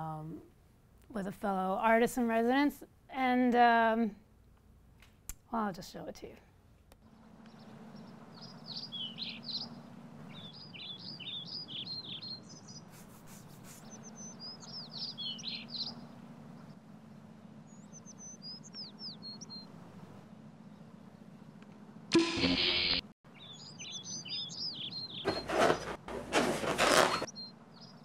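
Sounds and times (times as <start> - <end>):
small birds chirping: 7.0 - 16.8, 17.6 - 19.8, 23.3 - 25.9, 27.1 - 28.0
steady low hum: 12.4 - 23.0.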